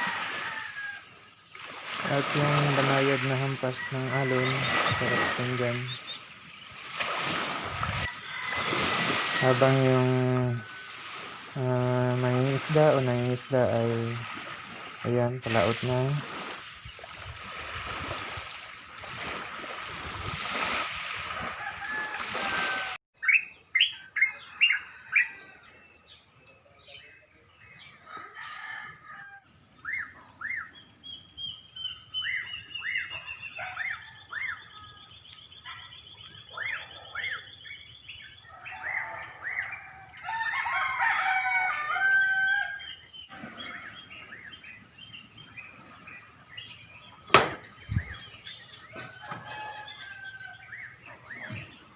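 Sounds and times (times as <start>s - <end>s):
rooster crowing: 0.0s - 1.1s, 3.8s - 5.8s, 8.1s - 9.7s, 21.5s - 23.0s, 28.0s - 29.5s, 38.5s - 42.9s, 48.9s - 50.8s
gentle waves: 0.0s - 23.0s, 38.7s - 51.9s
bird trill: 23.2s - 26.2s, 29.8s - 40.2s
small birds chirping: 29.7s - 39.9s, 42.5s - 51.9s.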